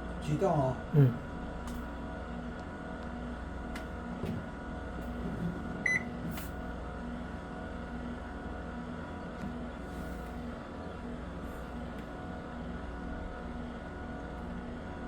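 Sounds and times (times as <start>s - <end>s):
washing machine motor hum: 0.0s - 15.0s
short electronic beep: 5.9s - 6.1s.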